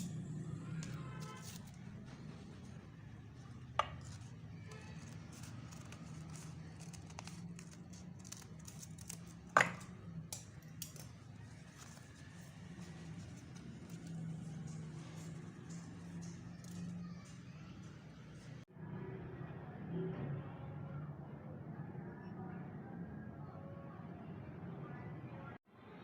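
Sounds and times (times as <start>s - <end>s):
paper ticks and rustles: 4.1s - 9.5s, 10.7s - 17.4s.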